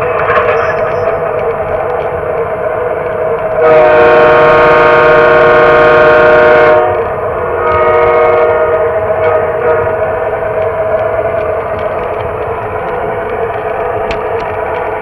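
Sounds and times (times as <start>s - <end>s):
model train running hum: 0.0s - 15.0s
model train horn: 3.6s - 10.0s.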